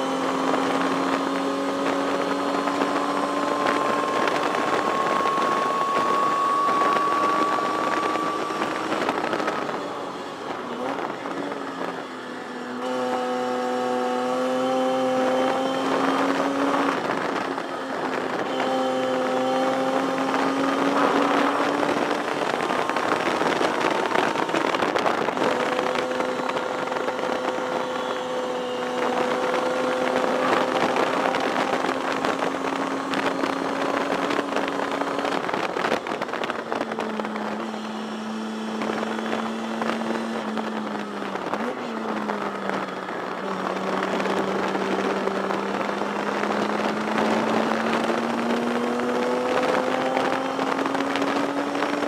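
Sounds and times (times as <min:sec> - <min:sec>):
race car engine revving: 0:00.0 - 0:09.9, 0:10.5 - 0:52.0
wind and road noise: 0:00.0 - 0:52.0.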